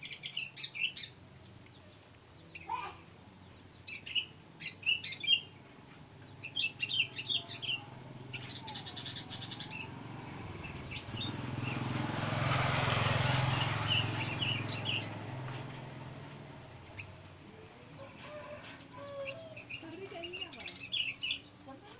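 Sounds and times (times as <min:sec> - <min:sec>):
bulbul chirping: 0:06.4 - 0:10.0.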